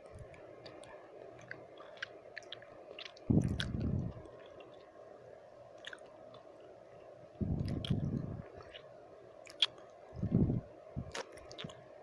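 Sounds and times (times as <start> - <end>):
faint background noise: 0.0 - 12.0
wet mouth clicks: 1.5 - 4.5, 7.5 - 8.9, 11.0 - 11.8.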